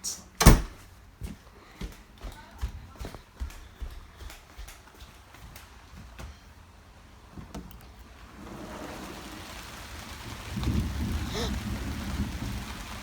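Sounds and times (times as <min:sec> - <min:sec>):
rain hiss: 0:06.3 - 0:13.0
low rumble of thunder: 0:08.3 - 0:13.0.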